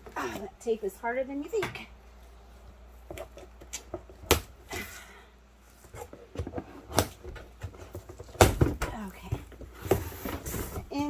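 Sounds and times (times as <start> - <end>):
cardboard and tape rustling: 5.6 - 11.0.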